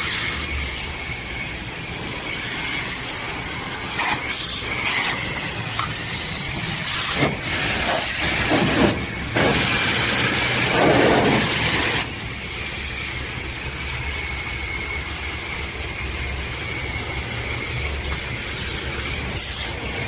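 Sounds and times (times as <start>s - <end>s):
pressure washer spraying: 0.0s - 12.5s, 17.5s - 20.0s
pump whine: 0.0s - 20.0s.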